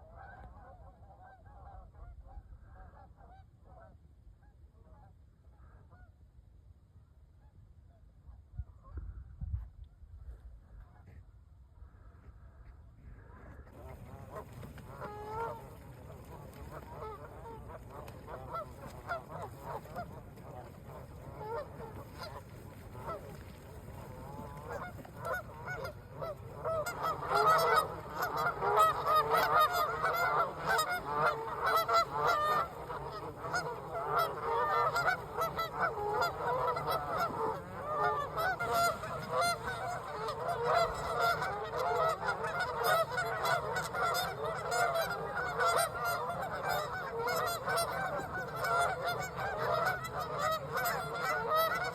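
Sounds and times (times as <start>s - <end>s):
geese honking: 0.1s - 1.9s, 13.3s - 51.9s.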